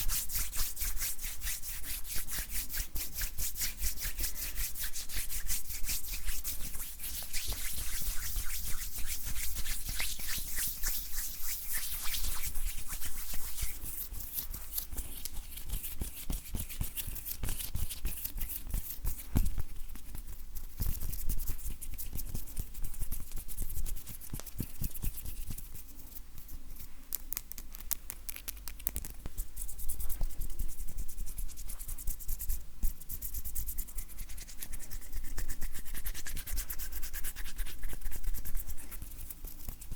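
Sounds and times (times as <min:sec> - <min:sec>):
hands rubbing together: 0:00.0 - 0:26.9.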